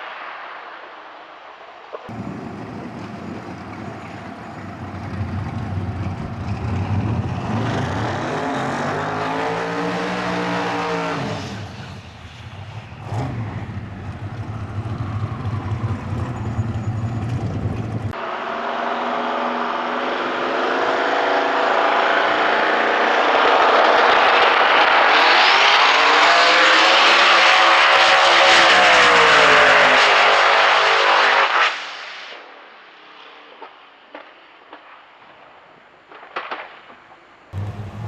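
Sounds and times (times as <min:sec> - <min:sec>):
drag car engine running: 0:02.1 - 0:07.9, 0:12.6 - 0:18.1, 0:37.6 - 0:38.0.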